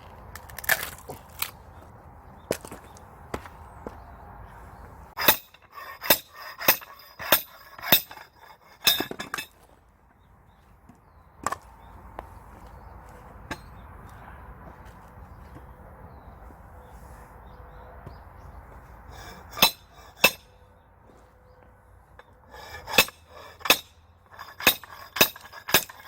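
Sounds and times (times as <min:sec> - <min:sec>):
ringing metal-on-metal strikes: 0:05.2 - 0:09.6, 0:19.2 - 0:20.6, 0:22.2 - 0:26.0.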